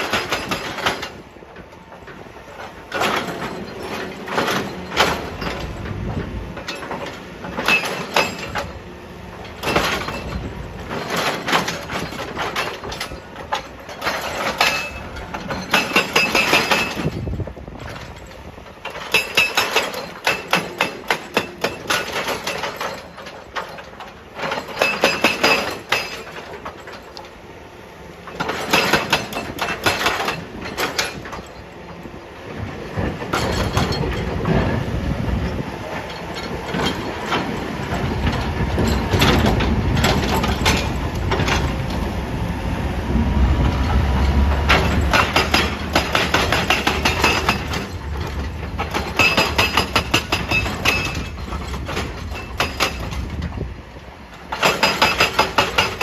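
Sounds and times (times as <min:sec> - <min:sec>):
hydraulic breaker hammering rock: 0:00.0 - 0:01.2, 0:02.6 - 0:08.8, 0:09.5 - 0:27.2, 0:28.3 - 0:31.6, 0:33.0 - 0:34.7, 0:35.4 - 0:42.0, 0:43.6 - 0:53.6, 0:54.5 - 0:56.0
diesel engine running: 0:33.7 - 0:51.9.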